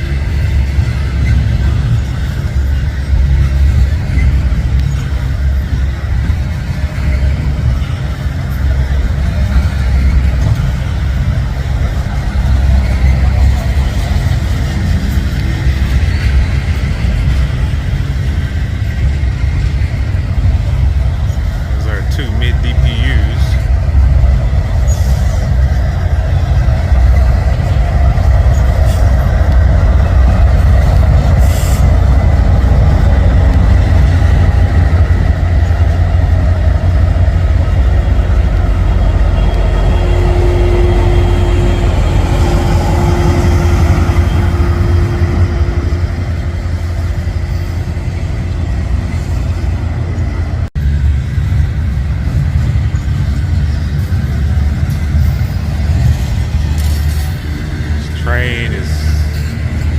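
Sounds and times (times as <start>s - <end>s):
freight train passing: 0.0s - 59.9s.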